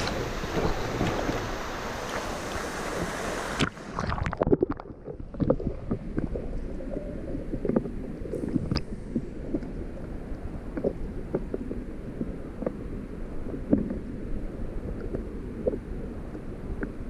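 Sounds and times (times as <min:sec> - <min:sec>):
low knocks and thumps: 0:00.0 - 0:03.5
faint hiss: 0:00.0 - 0:04.0
waterfall roaring: 0:00.0 - 0:04.0.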